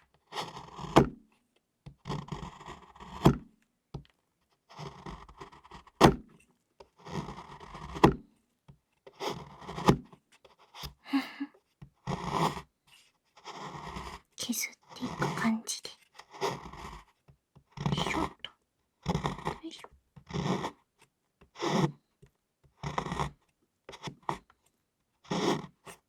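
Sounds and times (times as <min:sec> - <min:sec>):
knife scraping chocolate: 0:00.1 - 0:01.0, 0:02.0 - 0:03.2, 0:04.5 - 0:08.1, 0:09.1 - 0:11.0, 0:12.0 - 0:19.6, 0:20.2 - 0:20.9, 0:21.5 - 0:22.0, 0:22.7 - 0:24.5, 0:25.2 - 0:26.0.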